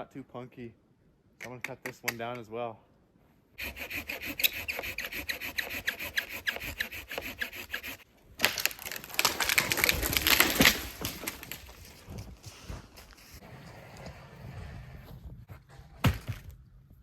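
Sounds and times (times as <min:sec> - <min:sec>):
hand saw cutting wood: 0:03.6 - 0:08.0.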